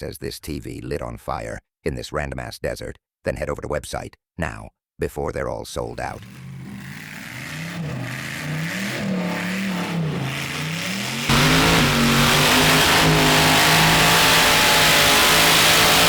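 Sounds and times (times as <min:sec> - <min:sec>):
car engine revving: 0:06.2 - 0:16.0
tires spinning: 0:06.2 - 0:16.0.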